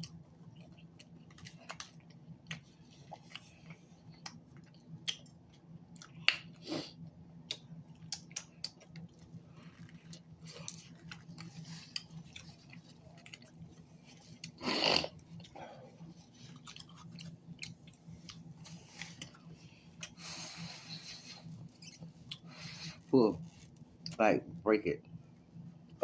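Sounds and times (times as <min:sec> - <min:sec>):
close chewing and biting: 0:00.0 - 0:06.5, 0:07.4 - 0:19.4
wet mouth clicks and smacks: 0:01.4 - 0:05.4, 0:07.4 - 0:09.1.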